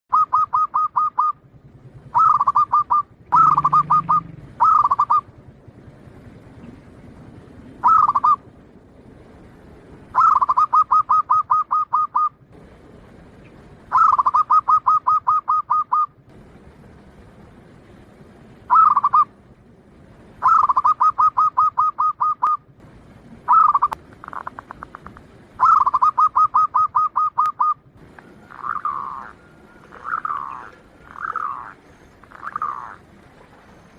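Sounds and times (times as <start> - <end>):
dove cooing: 0.1 - 5.4, 7.8 - 8.4, 10.1 - 12.4, 13.9 - 16.2, 18.7 - 19.3, 20.4 - 22.6, 23.4 - 33.9.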